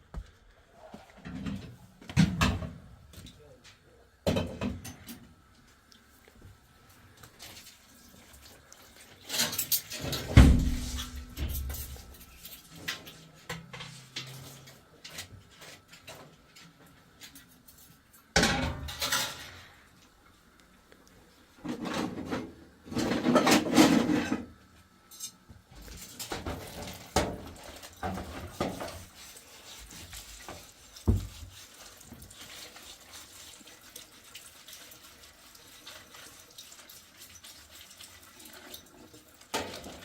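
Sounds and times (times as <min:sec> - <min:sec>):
rustling and scraping: 0:09.0 - 0:18.1, 0:21.5 - 0:24.5, 0:25.2 - 0:33.6
knocks and clattering: 0:10.1 - 0:12.2
heavy thump: 0:10.4 - 0:11.0.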